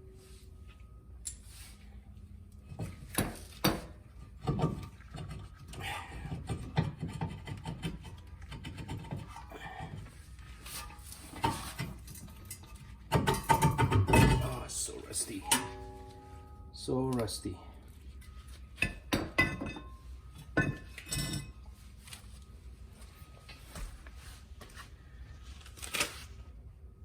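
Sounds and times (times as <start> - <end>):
hand scraping rusty metal: 6.2 - 12.1.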